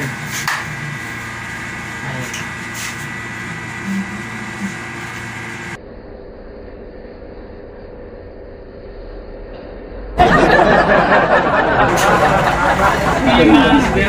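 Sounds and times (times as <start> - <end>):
mechanical room hum: 0.0 - 14.0
murmur of voices: 11.9 - 14.0.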